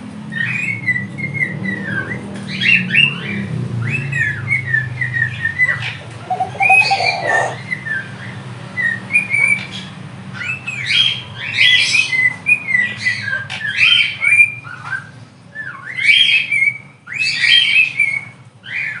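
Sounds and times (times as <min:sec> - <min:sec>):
parrots calling: 0:05.6 - 0:07.7.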